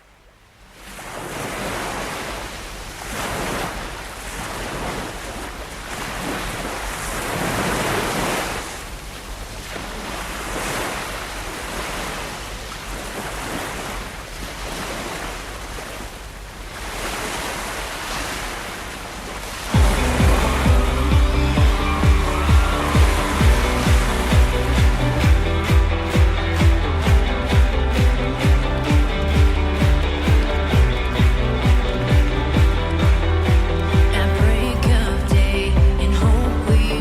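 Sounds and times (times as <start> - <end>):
rushing noise: 19.7 - 34.2
steady low hum: 19.8 - 36.9.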